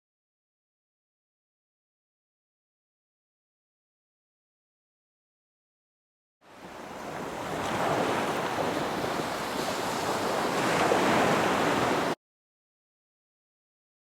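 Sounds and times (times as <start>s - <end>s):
ocean waves washing in: 6.4s - 12.2s.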